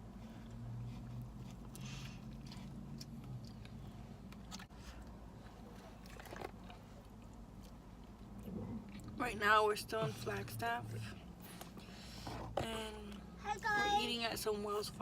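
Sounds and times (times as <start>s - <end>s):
person chewing food: 0.0s - 9.2s.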